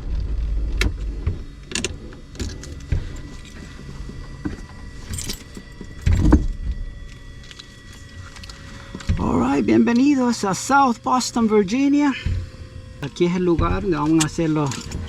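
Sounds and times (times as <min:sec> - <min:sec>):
handling clicks and rattles: 0:13.0 - 0:15.0
loud thump: 0:13.6 - 0:14.2.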